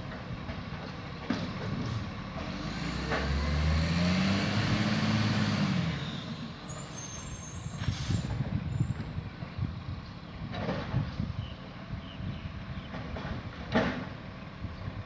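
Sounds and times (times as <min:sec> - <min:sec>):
garbage truck driving past: 0:00.0 - 0:08.5
high squeal: 0:06.0 - 0:08.9.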